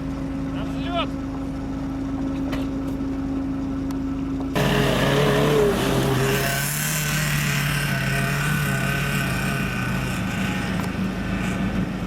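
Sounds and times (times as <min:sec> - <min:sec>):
off-road engine running: 0:00.0 - 0:12.0
louder engine running: 0:04.4 - 0:12.0.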